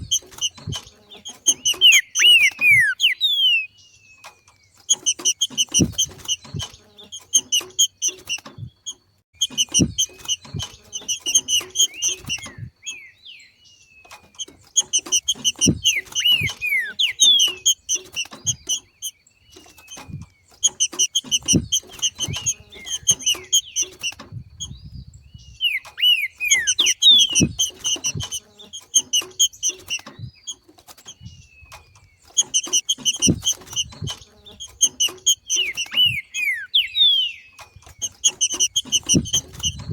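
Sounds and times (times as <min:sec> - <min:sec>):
bird chattering call: 0:00.0 - 0:03.8, 0:14.7 - 0:19.1, 0:25.6 - 0:30.0, 0:32.4 - 0:39.9.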